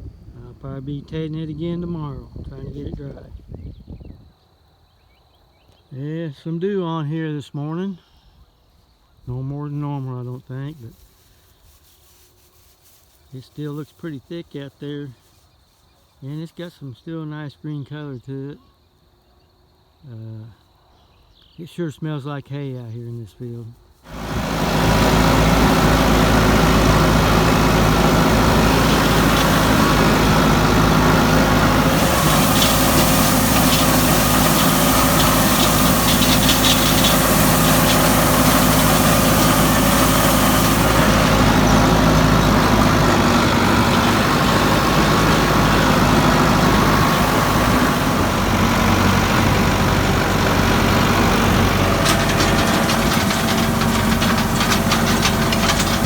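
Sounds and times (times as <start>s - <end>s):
machinery clicks: 24.1s - 56.0s
machinery hiss: 24.1s - 56.0s
tractor engine running: 24.1s - 56.0s.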